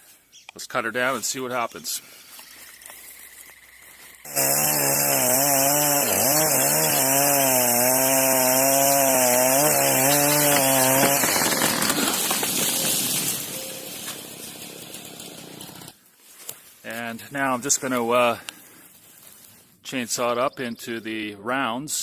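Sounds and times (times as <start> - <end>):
chainsaw cutting wood: 2.5 - 16.0.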